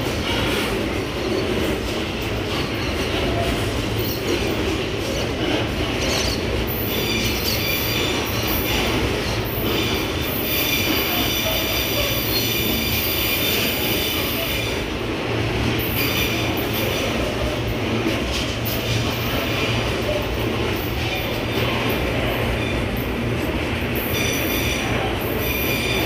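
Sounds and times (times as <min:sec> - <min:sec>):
high squeal of train wheels: 0:00.0 - 0:14.9, 0:15.8 - 0:17.7, 0:24.0 - 0:26.0
freight train rumbling on rails: 0:00.0 - 0:26.0.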